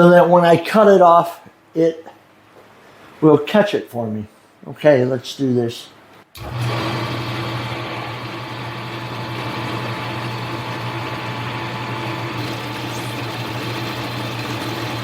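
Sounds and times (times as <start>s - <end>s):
lathe motor hum and whine: 6.4s - 15.0s
cutting tool hiss: 12.4s - 15.0s.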